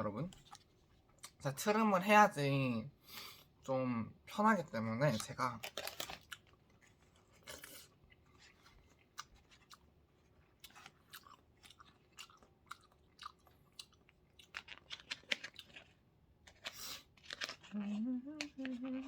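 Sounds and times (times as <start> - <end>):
chewing food: 5.0 - 19.0.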